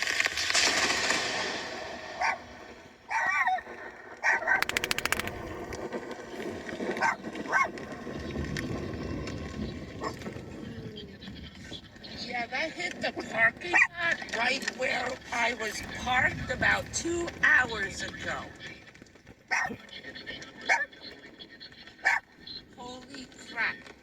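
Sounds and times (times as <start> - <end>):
rattle of sharp cracks: 0.0 - 1.7, 4.4 - 6.0
dog barking: 2.2 - 2.5, 3.1 - 5.0, 7.0 - 7.8, 10.0 - 10.4, 13.7 - 14.0, 19.5 - 19.8, 20.6 - 20.9, 22.0 - 22.3.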